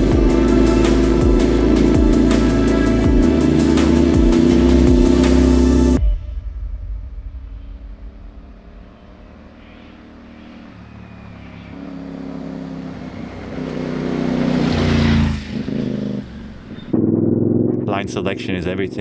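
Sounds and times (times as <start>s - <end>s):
motorcycle engine labouring uphill: 0.0s - 6.0s, 9.4s - 18.1s.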